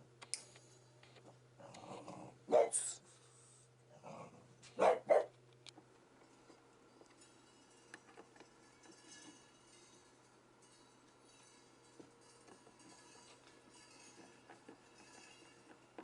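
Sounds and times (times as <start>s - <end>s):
dog barking: 2.5s - 3.0s, 4.8s - 5.3s.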